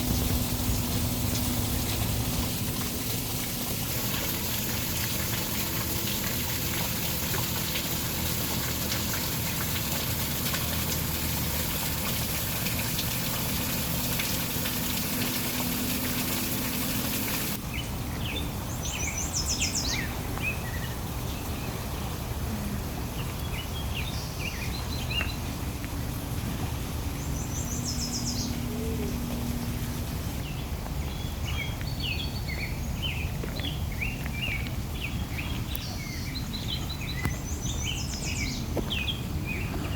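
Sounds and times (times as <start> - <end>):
rushing water hissing: 0.0 - 30.5
outdoor background noise: 0.0 - 39.9
birds chirping and trilling: 27.1 - 33.8.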